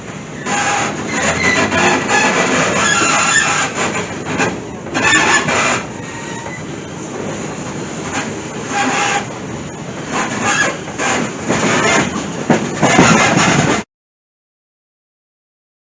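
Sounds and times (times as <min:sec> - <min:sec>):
train rattling and clacking: 0:00.0 - 0:13.9
train wheel squeal: 0:00.3 - 0:07.0, 0:08.1 - 0:09.4, 0:10.1 - 0:13.8.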